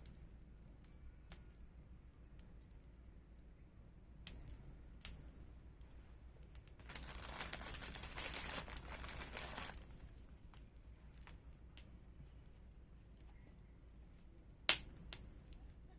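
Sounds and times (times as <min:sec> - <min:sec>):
wood fire crackling: 0:00.0 - 0:15.9
sharp pops of fire: 0:04.2 - 0:05.3, 0:14.2 - 0:15.6.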